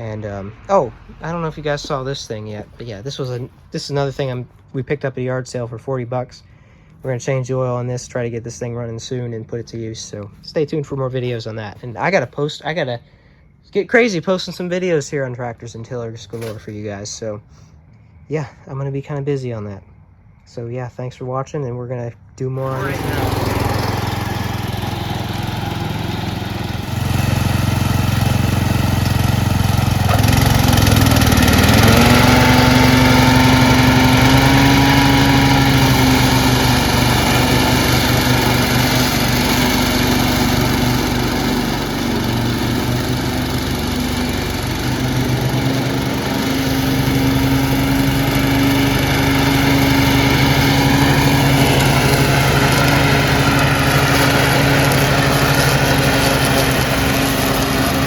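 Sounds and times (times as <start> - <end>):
lawn tractor engine revving: 22.6 - 58.0.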